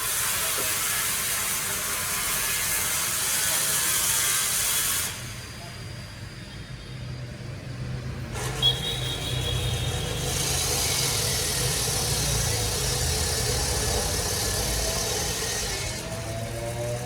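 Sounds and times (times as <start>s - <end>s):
hiss: 0.0s - 5.8s, 10.1s - 17.0s.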